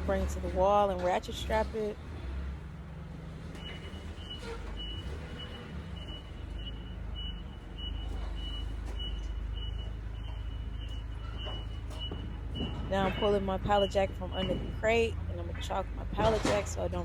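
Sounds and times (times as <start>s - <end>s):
low engine rumble: 0.0s - 17.0s
electronic backup alarm beeping: 3.6s - 15.8s.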